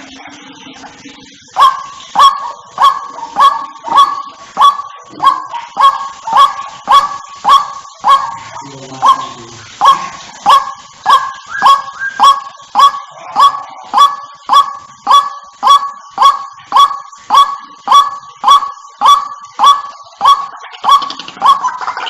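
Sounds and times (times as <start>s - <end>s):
waterhen calling: 0.0s - 22.0s.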